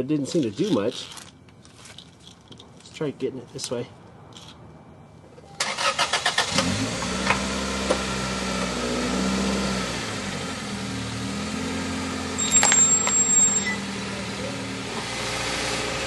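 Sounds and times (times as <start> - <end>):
car engine starting and running: 5.5 - 16.0.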